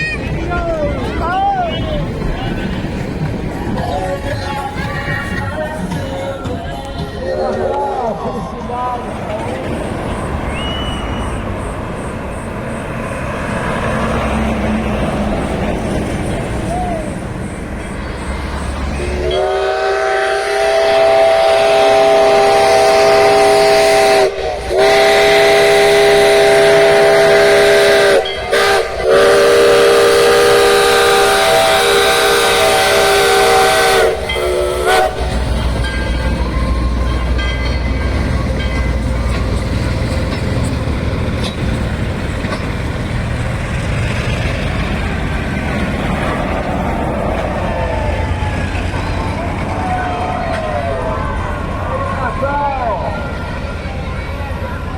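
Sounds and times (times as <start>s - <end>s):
passing train rumble: 0.0s - 54.9s
locomotive whistle blasts: 10.1s - 12.2s, 18.9s - 39.1s.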